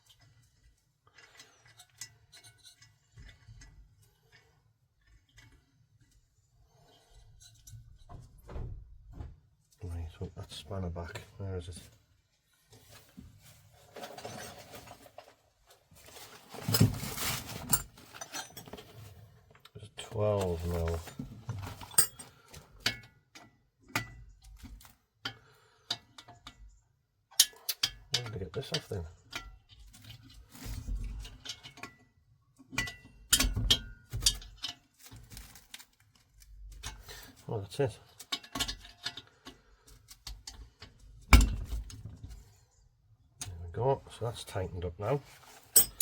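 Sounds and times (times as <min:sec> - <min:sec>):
metal tools clinking: 0:16.1 - 0:19.1, 0:20.4 - 0:24.1, 0:27.3 - 0:30.3, 0:45.5 - 0:46.0
metal hand tools clattering: 0:20.4 - 0:23.0, 0:45.6 - 0:46.0.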